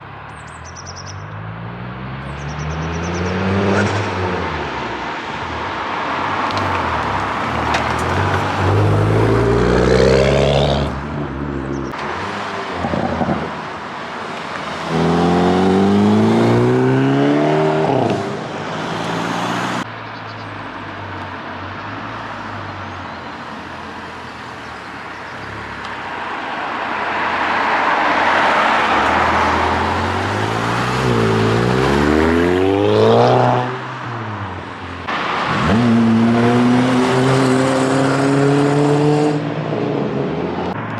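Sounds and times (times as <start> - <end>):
cars revving while driving past: 0.0 - 40.9.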